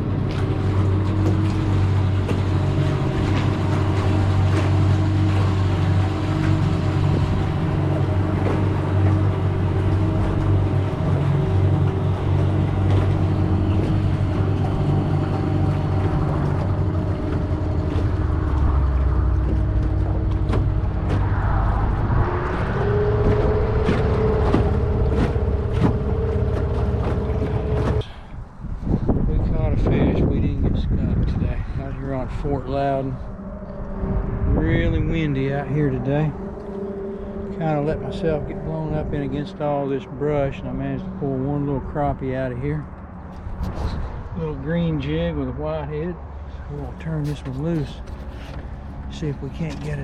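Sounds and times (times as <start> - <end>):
outboard motor running: 0.0 - 50.0
high-pitched whine: 32.3 - 42.3.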